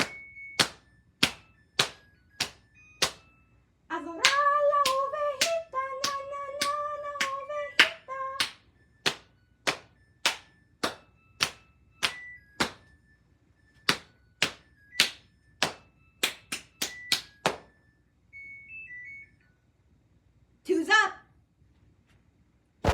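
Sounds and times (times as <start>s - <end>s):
sharp claps: 0.0s - 3.2s, 4.2s - 12.9s, 13.8s - 17.7s.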